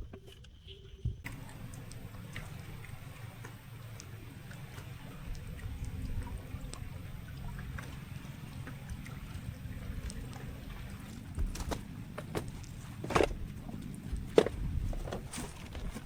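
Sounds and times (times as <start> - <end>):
small dripping ticks: 0.6 - 14.4
water gurgling and lapping: 1.2 - 16.0.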